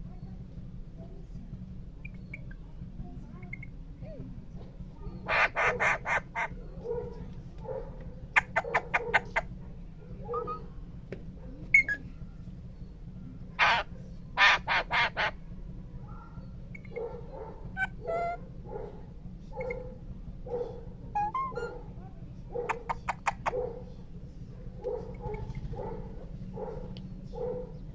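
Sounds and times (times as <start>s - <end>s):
parrot squawking: 5.2s - 6.6s, 8.3s - 9.5s, 10.3s - 10.7s, 11.7s - 12.0s, 13.6s - 15.4s, 16.7s - 18.4s, 19.6s - 19.8s, 21.1s - 21.9s, 22.6s - 23.8s.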